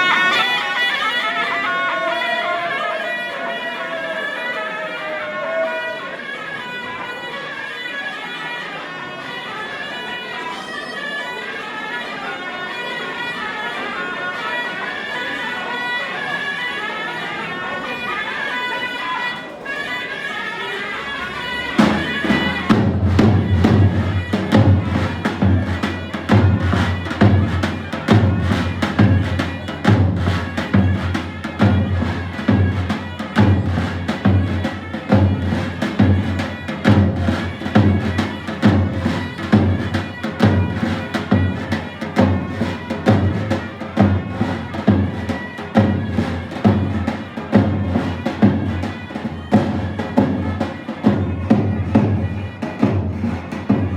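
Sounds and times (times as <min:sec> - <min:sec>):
shrill wind instrument melody: 0:00.0 - 0:53.9
deep drum beat: 0:21.8 - 0:32.8.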